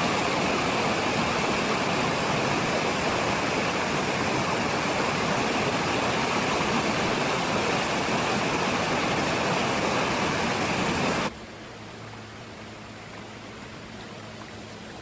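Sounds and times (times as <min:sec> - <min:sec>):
river rushing over rocks: 0:00.0 - 0:11.3.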